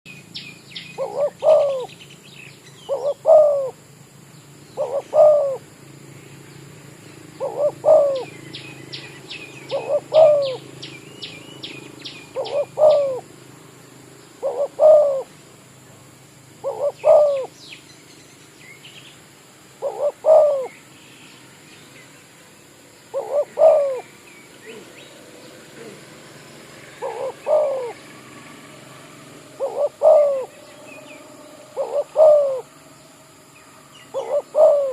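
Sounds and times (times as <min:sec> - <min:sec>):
dove cooing: 0:01.0 - 0:02.0, 0:02.9 - 0:03.8, 0:04.8 - 0:05.7, 0:07.4 - 0:11.0, 0:11.9 - 0:13.3, 0:14.4 - 0:15.3, 0:16.6 - 0:17.6, 0:19.8 - 0:20.7, 0:23.1 - 0:33.0, 0:33.6 - 0:34.9.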